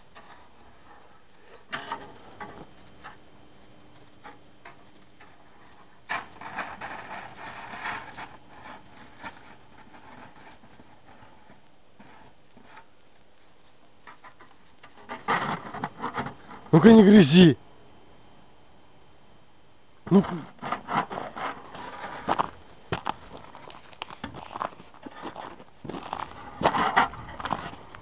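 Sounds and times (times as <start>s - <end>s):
shovel scraping in snow: 20.3s - 22.5s.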